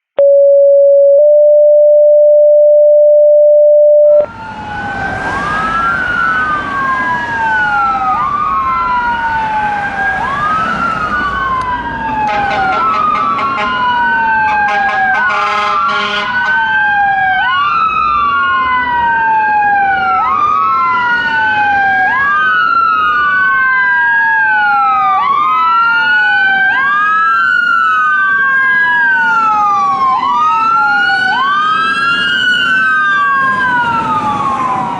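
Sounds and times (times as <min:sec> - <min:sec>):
loud steady tone: 0:00.2 - 0:04.3
fire truck sirens wailing: 0:04.0 - 0:34.9
horn blasts: 0:14.6 - 0:16.4.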